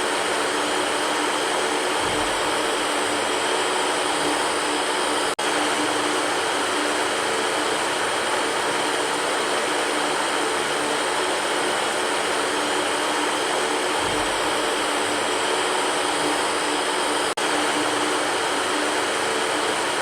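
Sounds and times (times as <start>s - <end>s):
electric fan whooshing: 0.0s - 20.0s.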